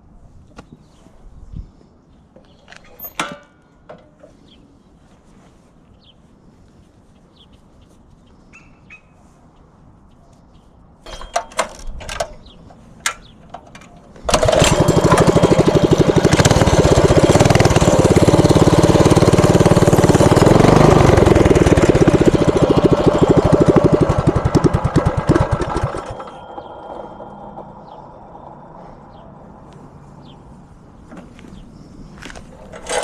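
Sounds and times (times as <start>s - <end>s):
mini bike engine running: 14.3s - 28.1s, 32.6s - 33.0s.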